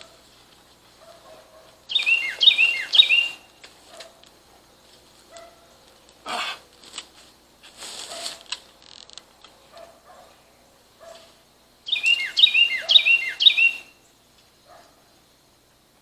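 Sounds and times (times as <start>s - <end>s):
songbird singing: 0.0s - 6.2s, 8.8s - 16.0s
brief rustle: 6.8s - 9.9s.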